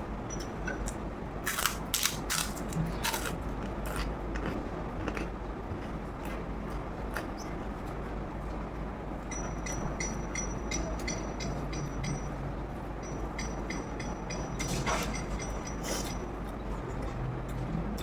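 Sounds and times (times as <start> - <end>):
chewing clicks and crunches: 0.4 - 7.4.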